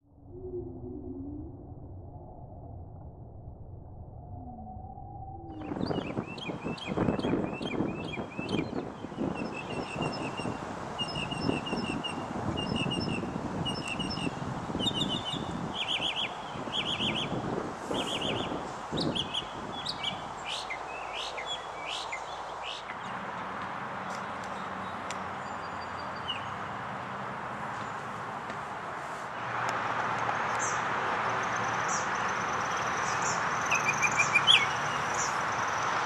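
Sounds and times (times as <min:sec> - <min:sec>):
small birds singing: 0:05.6 - 0:17.4, 0:18.0 - 0:23.2, 0:24.0 - 0:26.7, 0:31.4 - 0:35.9.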